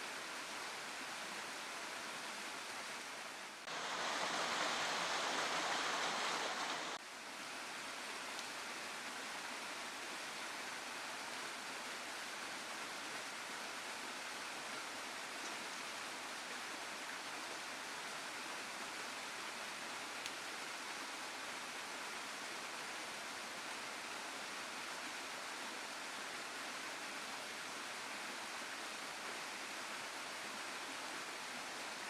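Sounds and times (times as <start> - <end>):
waterfall rushing: 3.6 - 7.0.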